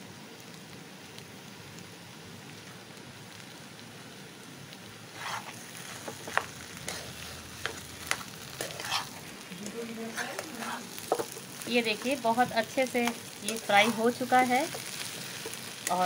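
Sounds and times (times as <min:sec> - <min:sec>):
stuffing sizzling in a pan: 0:00.0 - 0:16.0
metal spatula scraping a pan: 0:05.1 - 0:09.2, 0:10.0 - 0:12.2.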